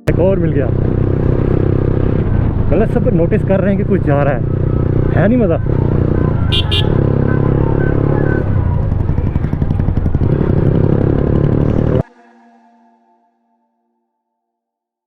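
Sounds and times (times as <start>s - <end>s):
motorcycle exhaust note: 0.0s - 12.0s.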